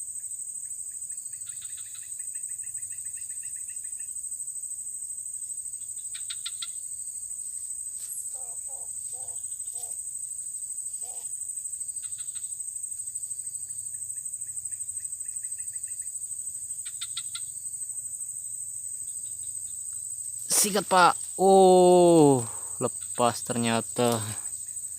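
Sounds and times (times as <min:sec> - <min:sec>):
crickets trilling: 0:00.0 - 0:24.9
low animal calls: 0:08.3 - 0:10.0.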